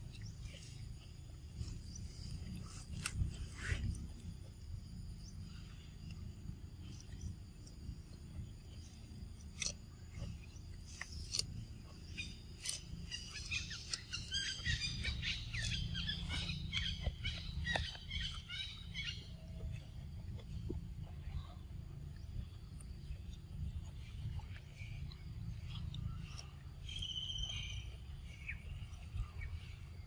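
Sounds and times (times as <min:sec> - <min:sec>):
steady low rumble: 0:00.0 - 0:30.0
birds chirping: 0:10.2 - 0:20.7, 0:22.2 - 0:30.0.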